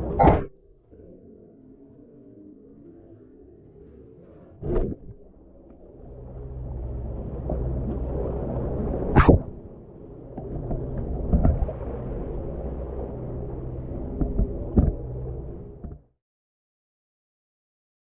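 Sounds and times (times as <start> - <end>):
water noise: 0.0 - 16.0
boat engine running: 4.6 - 16.1.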